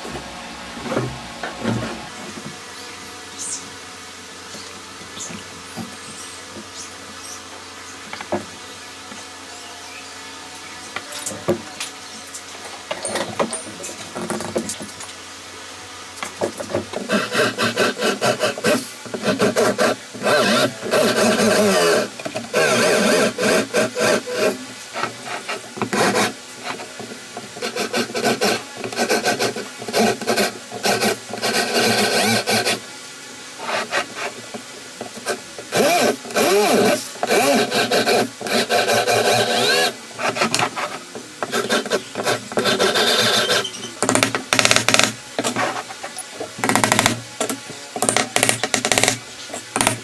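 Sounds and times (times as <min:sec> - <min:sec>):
hand tool scraping wood: 0:16.5 - 0:32.8, 0:33.6 - 0:47.2
faint squeak: 0:43.2 - 0:44.0.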